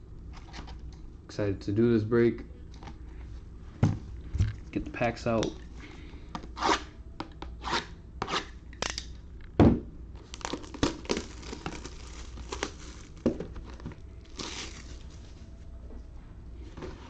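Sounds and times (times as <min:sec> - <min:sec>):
plastic wrapping crinkling: 0:10.2 - 0:15.4.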